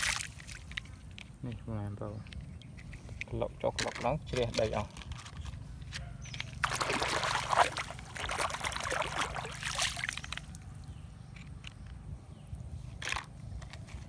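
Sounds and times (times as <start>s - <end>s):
water pouring and splashing: 0.0s - 0.9s, 6.4s - 10.8s.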